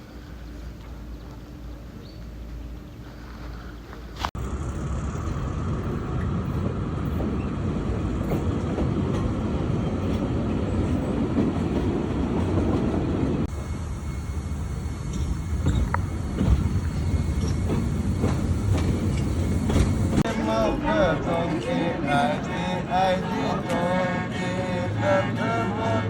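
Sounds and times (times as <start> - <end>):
train wheels clattering on track: 4.8 - 20.3.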